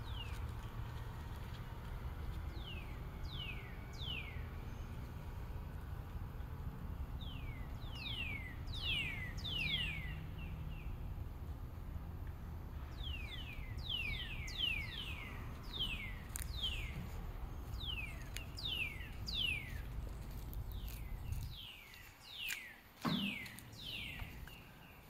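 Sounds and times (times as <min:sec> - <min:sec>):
low rumble: 0:00.0 - 0:21.6
bird whistling: 0:07.3 - 0:10.2, 0:13.0 - 0:17.0, 0:17.8 - 0:19.9, 0:21.6 - 0:24.4
short thump: 0:23.0 - 0:23.6.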